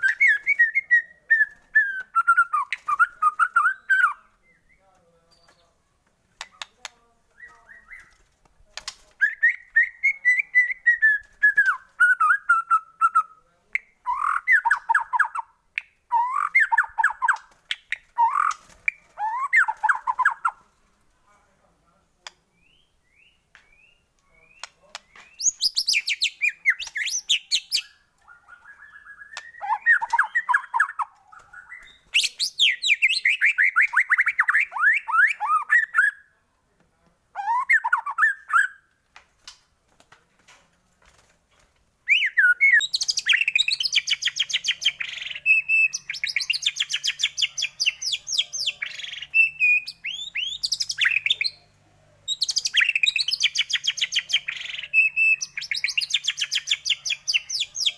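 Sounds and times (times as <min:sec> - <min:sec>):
songbird chattering and trilling: 0:09.2 - 0:15.5, 0:22.5 - 0:36.2, 0:42.1 - 0:57.9.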